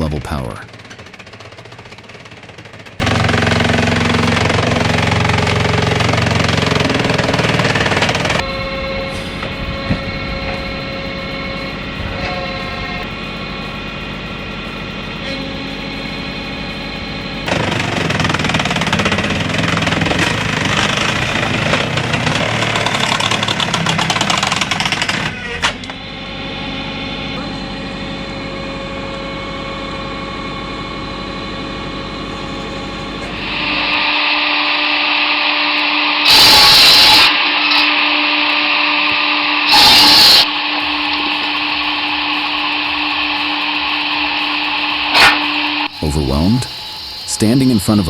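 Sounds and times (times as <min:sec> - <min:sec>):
machinery rattling clatter: 0:00.0 - 0:26.0, 0:39.7 - 0:48.0
power saw cutting logs: 0:00.7 - 0:26.0, 0:32.1 - 0:48.0
low engine hum: 0:02.4 - 0:24.9.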